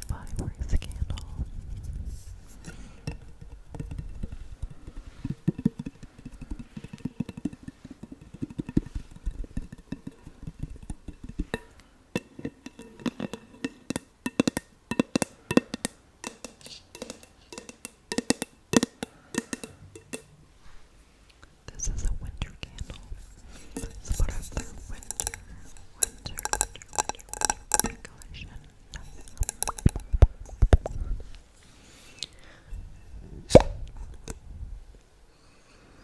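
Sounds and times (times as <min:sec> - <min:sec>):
fingernails tapping on glass candle jar: 0:02.6 - 0:20.3, 0:22.9 - 0:31.0.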